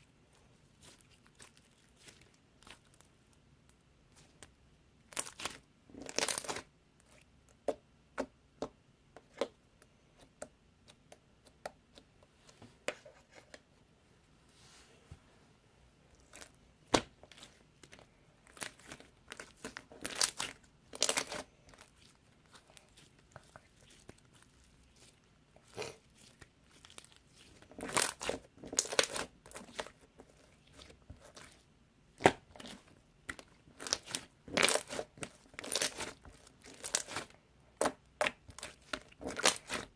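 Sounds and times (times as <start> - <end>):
slime squished by hand: 5.1 - 7.2, 16.2 - 39.9.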